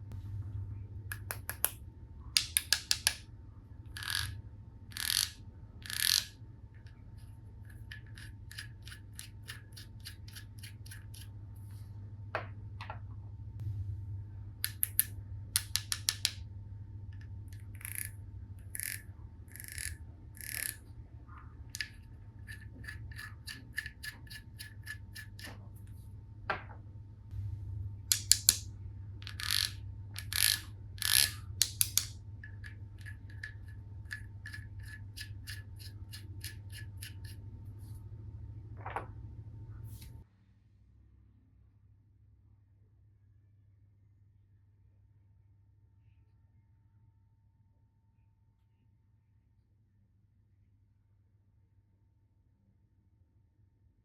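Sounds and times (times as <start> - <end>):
plastic toy tools clicking: 2.4 - 3.2, 4.0 - 6.3, 14.7 - 16.4, 28.1 - 28.6, 29.2 - 37.3.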